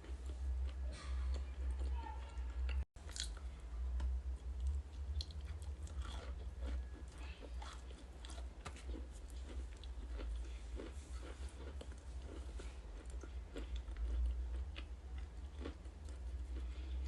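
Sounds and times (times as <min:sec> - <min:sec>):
steady low hum: 0:00.0 - 0:17.0
crunching and chewing ice: 0:03.0 - 0:03.5, 0:04.5 - 0:17.0.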